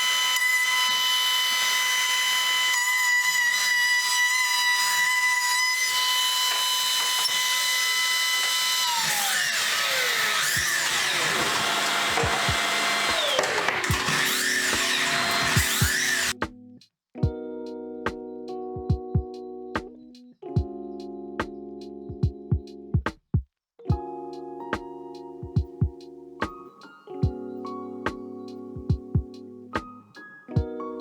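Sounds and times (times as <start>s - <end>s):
power tool motor whining: 0.0s - 16.4s.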